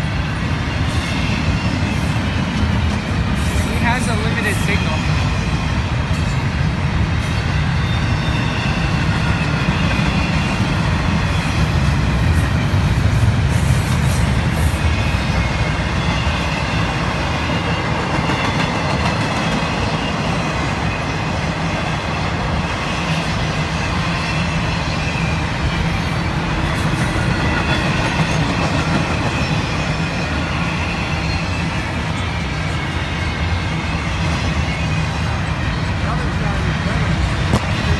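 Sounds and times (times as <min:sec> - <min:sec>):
train wheels rumbling on rail: 0:00.0 - 0:37.9.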